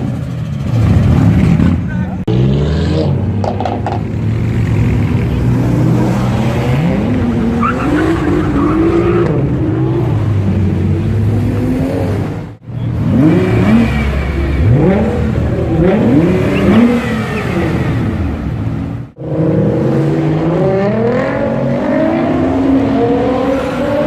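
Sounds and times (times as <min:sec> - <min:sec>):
sports car engine revving: 0:11.0 - 0:18.2.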